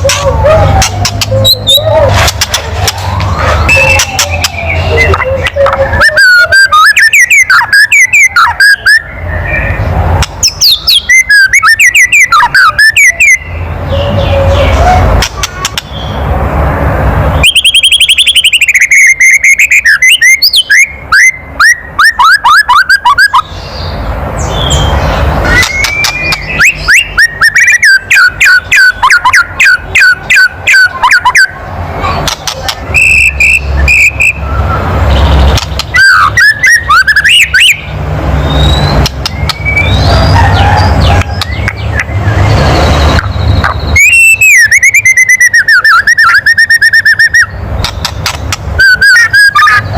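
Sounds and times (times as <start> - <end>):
bird rapid clicking rattle: 2.2 - 3.1, 25.6 - 26.6, 35.5 - 36.0, 47.8 - 48.7.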